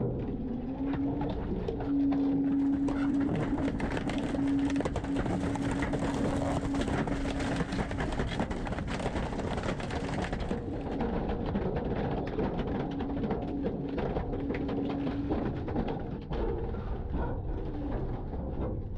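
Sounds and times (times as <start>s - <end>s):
mechanical whine: 0.0s - 18.9s
garbage truck running: 3.1s - 9.0s.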